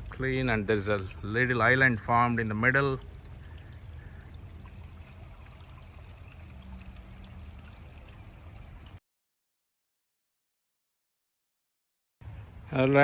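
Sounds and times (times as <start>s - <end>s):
stream flowing over rocks: 0.0s - 9.0s.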